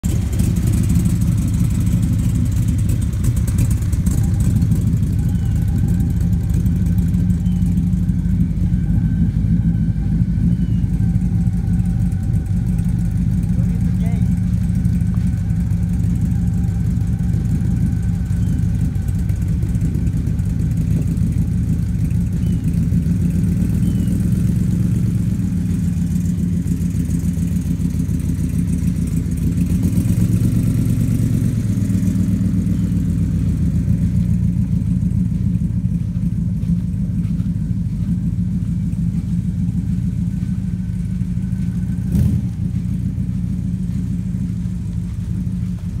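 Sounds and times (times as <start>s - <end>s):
car engine running: 0.0s - 46.0s.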